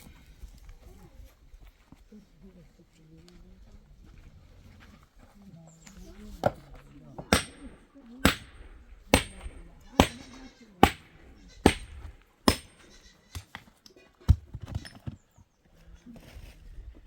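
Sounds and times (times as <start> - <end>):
sharp chopping blows: 7.3 - 13.5
livestock bleating: 10.3 - 11.7, 12.8 - 13.3.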